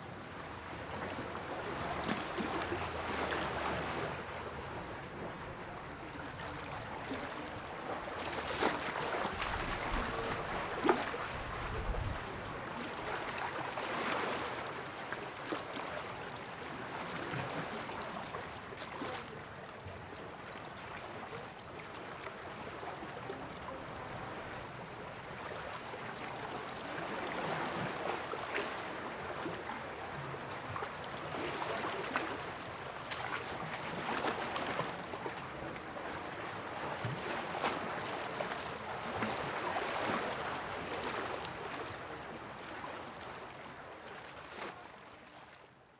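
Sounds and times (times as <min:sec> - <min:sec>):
sea water splashing: 0:06.1 - 0:16.0.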